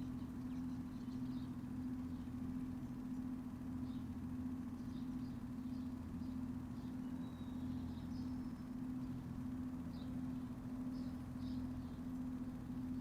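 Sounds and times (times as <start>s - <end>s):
faint bird chirps: 0.0s - 4.1s, 4.7s - 9.2s
steady low hum: 0.0s - 13.0s.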